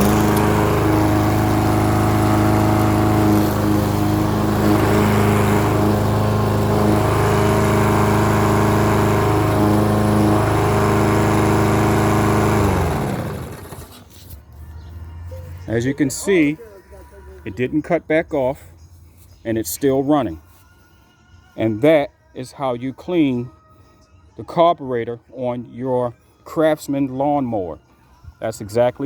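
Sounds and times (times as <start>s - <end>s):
lawnmower engine running: 0.0s - 14.2s.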